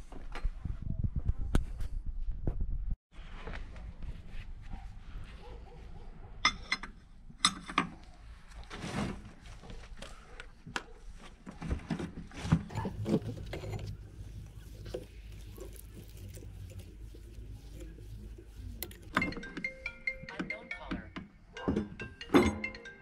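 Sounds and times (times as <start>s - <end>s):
metal parts rubbing: 12.7s - 19.9s
metal tools knocking and clicking: 20.3s - 23.0s.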